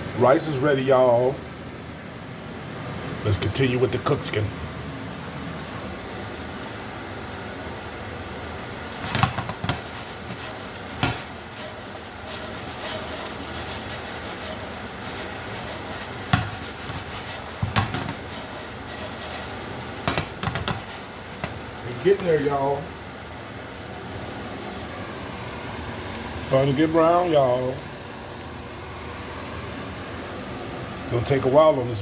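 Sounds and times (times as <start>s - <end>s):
chicken frying in oil: 5.8s - 32.0s
utensil knocking against pan: 9.0s - 22.3s.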